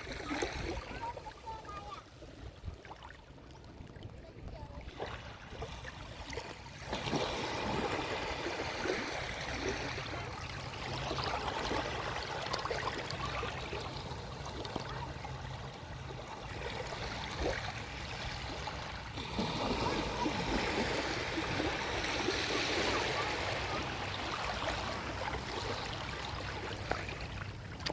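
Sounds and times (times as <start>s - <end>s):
waves lapping on shore: 0.0s - 3.3s, 4.3s - 27.9s
faint distant voices: 19.4s - 26.8s.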